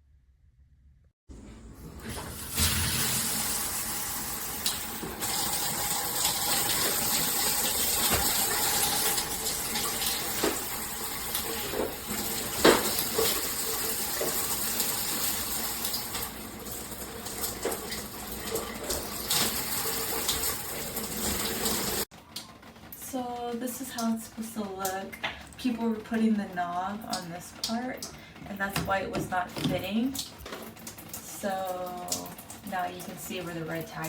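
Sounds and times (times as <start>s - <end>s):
shower head spraying water: 2.0s - 22.1s.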